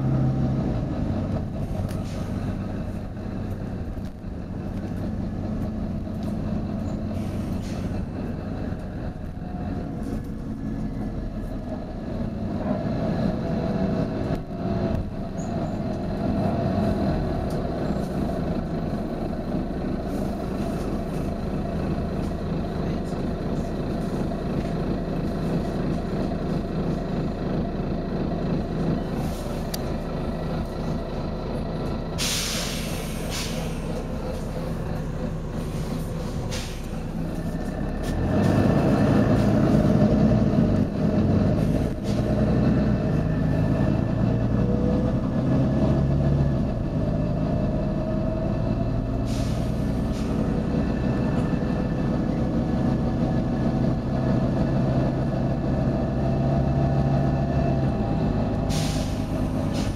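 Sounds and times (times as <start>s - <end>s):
bus diesel engine idling: 0.0s - 59.9s
compressed air hiss: 32.2s - 34.0s, 35.7s - 37.0s, 49.3s - 50.3s, 58.7s - 59.9s.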